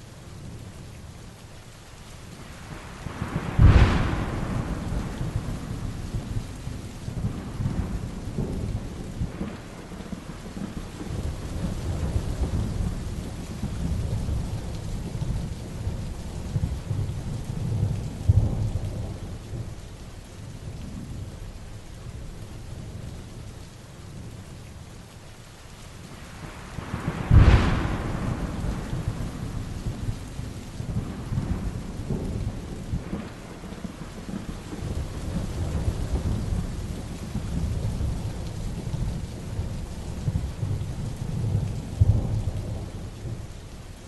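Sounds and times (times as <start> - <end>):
heavy rain falling: 0.0 - 44.0
thunder rolling: 3.0 - 19.8, 26.8 - 43.5.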